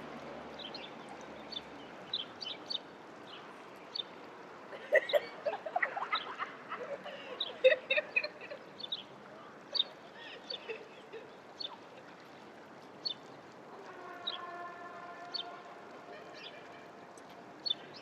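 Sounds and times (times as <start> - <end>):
birds chirping: 5.0 - 16.9, 17.6 - 18.0.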